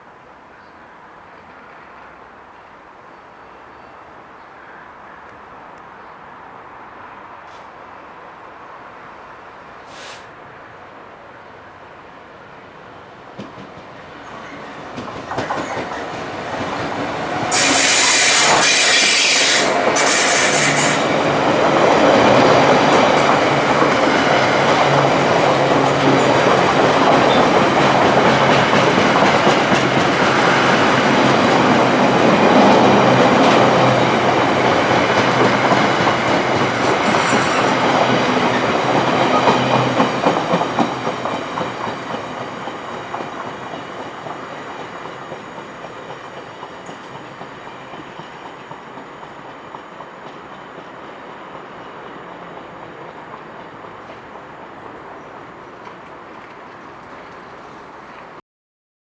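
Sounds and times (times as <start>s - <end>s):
loud hissing burst: 9.8s - 10.4s, 17.3s - 21.2s
diesel locomotive engine rumbling: 12.6s - 58.1s
wheels clickety-clack on rails: 13.3s - 58.4s
wheel squeal: 37.0s - 37.9s.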